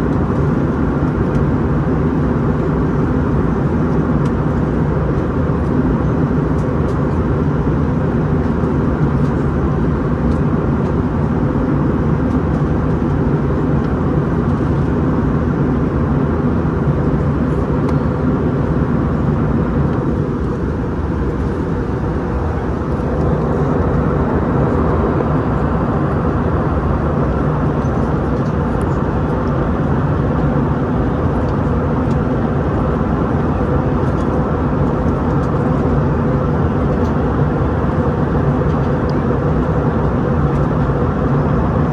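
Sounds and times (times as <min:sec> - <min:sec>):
airliner cabin engine rumble: 0:00.0 - 0:41.9.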